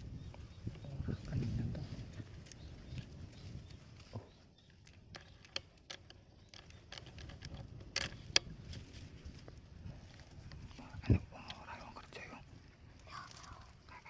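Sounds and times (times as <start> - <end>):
light clicks and ticks: 1.7 - 12.2.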